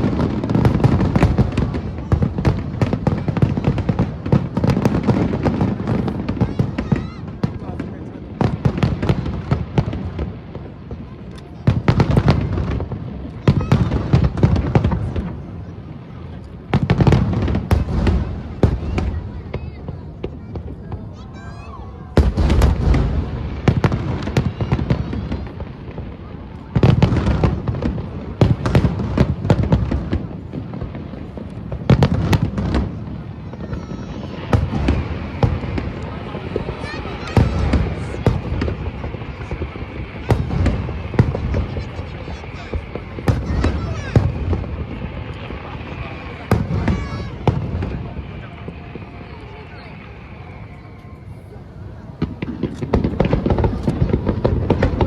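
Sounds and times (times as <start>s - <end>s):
fireworks bangs and crackles: 0.0s - 55.0s
rumble of shells exploding: 34.4s - 48.8s.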